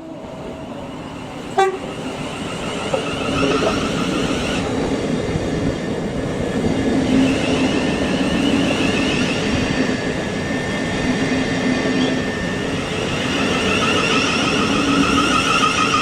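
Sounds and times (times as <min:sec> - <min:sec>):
train wheel and rail noise: 0:00.0 - 0:16.0
wavering whining tones: 0:07.0 - 0:16.0.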